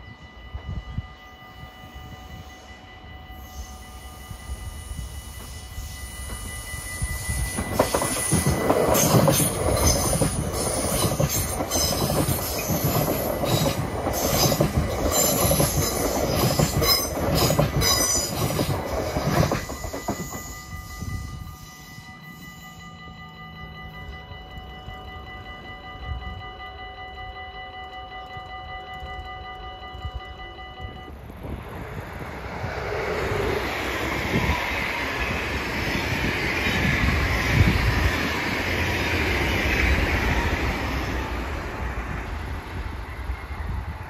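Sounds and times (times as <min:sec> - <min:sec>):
level-crossing bell ringing: 0:00.0 - 0:31.2
train wheel rumble: 0:00.0 - 0:44.0
high wheel squeal: 0:03.3 - 0:23.0.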